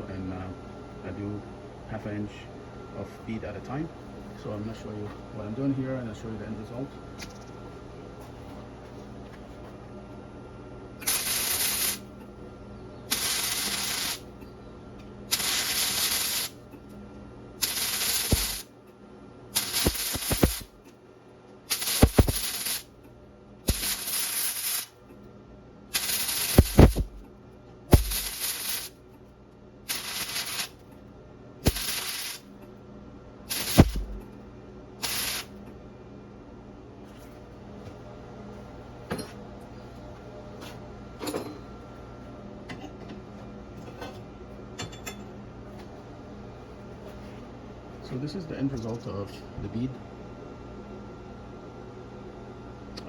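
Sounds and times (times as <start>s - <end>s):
sharp welding pops: 11.0s - 12.1s, 13.1s - 14.4s, 15.3s - 16.6s, 17.6s - 18.7s, 19.6s - 20.8s, 21.7s - 22.9s, 23.7s - 25.0s, 25.9s - 27.3s, 27.9s - 29.0s, 29.9s - 30.8s, 31.6s - 32.5s, 33.5s - 34.3s, 35.0s - 35.6s
welder arc crackling and hissing: 11.0s - 12.2s, 13.1s - 14.4s, 15.3s - 16.9s, 17.6s - 18.8s, 19.5s - 20.9s, 21.7s - 23.0s, 23.6s - 25.0s, 25.9s - 27.3s, 27.9s - 29.1s, 29.8s - 31.0s, 31.6s - 32.6s, 33.4s - 34.3s, 35.0s - 35.7s.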